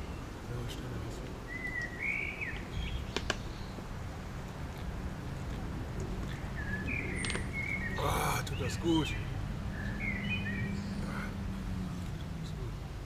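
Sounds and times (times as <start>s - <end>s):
low outdoor rumble: 0.0s - 13.0s
songbird whistling: 1.5s - 3.8s, 6.5s - 11.0s.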